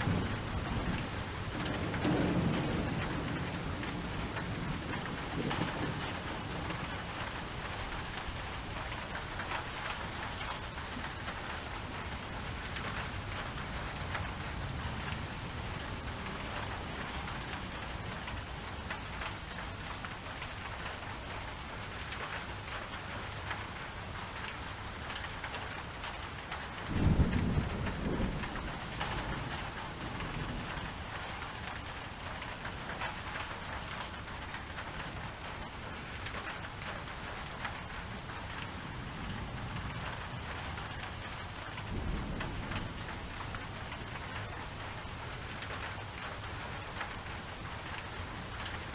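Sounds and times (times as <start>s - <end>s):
thunder rumbling: 0.0s - 9.2s, 26.8s - 31.9s, 38.0s - 46.6s
steady rain falling: 0.0s - 48.9s.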